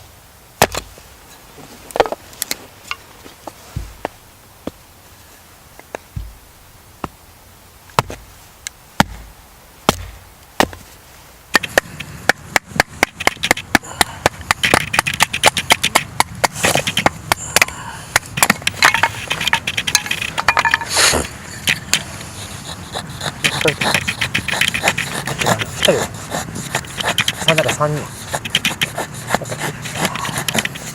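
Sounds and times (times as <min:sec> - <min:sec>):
firewood knocking with dull thud: 0:03.8 - 0:04.8, 0:06.2 - 0:07.2, 0:08.0 - 0:08.3, 0:09.0 - 0:09.3, 0:09.9 - 0:10.9, 0:11.5 - 0:20.8.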